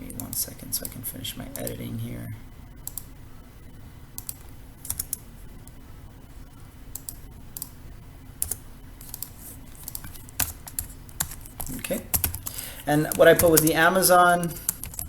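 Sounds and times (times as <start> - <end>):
typing on computer keyboard: 4.2 - 5.2, 8.4 - 13.9, 14.6 - 15.0.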